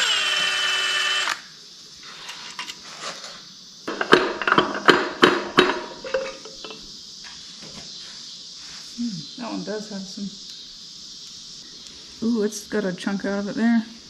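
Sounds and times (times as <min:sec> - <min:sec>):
power tool motor whirring: 0:00.0 - 0:01.5
metal parts clinking: 0:05.6 - 0:06.8.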